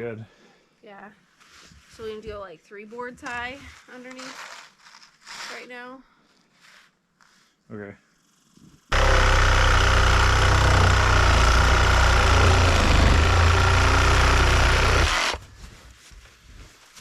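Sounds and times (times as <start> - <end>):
loud motor-driven machine running: 8.9 - 15.4.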